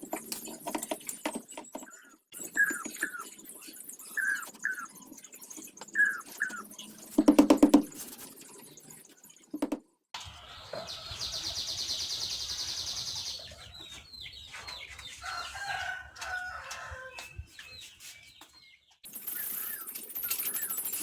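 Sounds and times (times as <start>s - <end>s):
chickens clucking: 9.6s - 18.1s.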